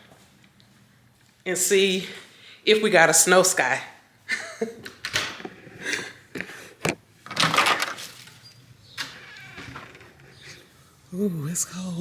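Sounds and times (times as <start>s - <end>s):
door sliding open: 6.8s - 10.7s.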